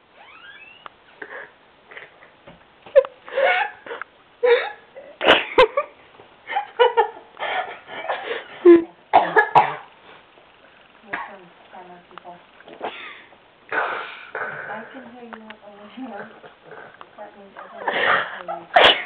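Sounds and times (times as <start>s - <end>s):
person making throaty vocal effects: 13.7s - 14.8s.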